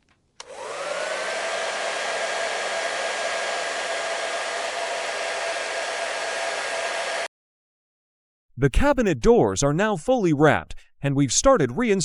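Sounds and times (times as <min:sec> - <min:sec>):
hair dryer whirring: 0:00.4 - 0:07.3.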